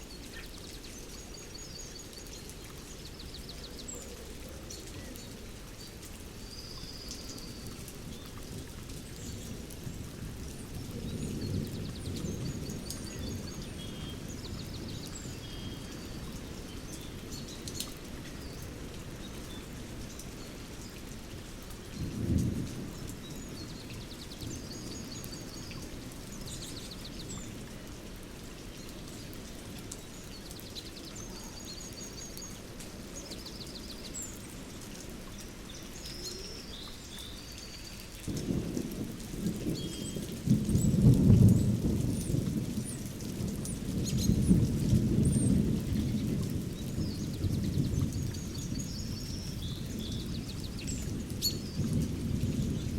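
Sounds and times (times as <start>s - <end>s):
steady rain: 0.0s - 52.9s
thunder rumbling: 38.3s - 52.9s.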